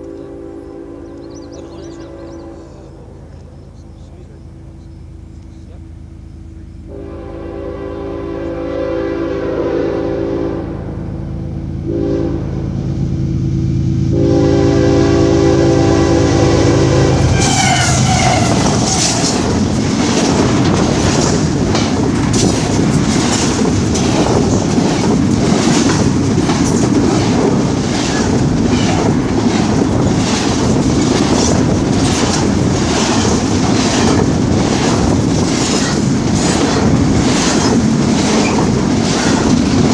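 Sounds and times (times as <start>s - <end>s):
locomotive horn: 0.0s - 3.5s, 6.8s - 11.1s, 11.8s - 12.9s, 14.0s - 19.5s
train rumbling: 0.0s - 39.9s
wheels clattering over rail joints: 17.3s - 39.9s.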